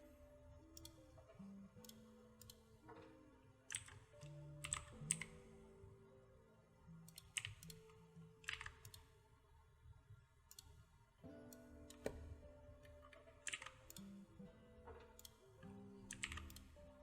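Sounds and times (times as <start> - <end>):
soft background music: 0.0 - 17.0
computer keyboard clicks: 0.7 - 1.1, 1.8 - 2.7, 3.7 - 5.6, 7.1 - 9.2, 10.5 - 10.8, 11.5 - 14.2, 15.0 - 17.0.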